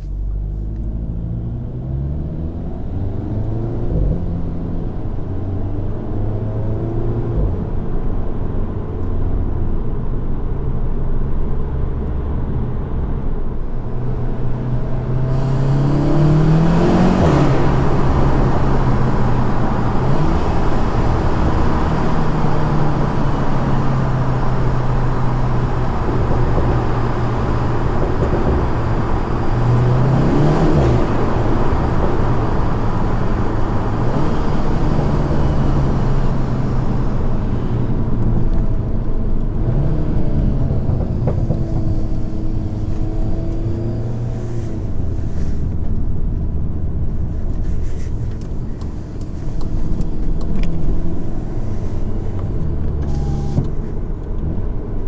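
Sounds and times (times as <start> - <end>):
car engine revving from inside cabin: 0.0 - 8.3, 13.9 - 55.0
road noise: 0.0 - 55.0.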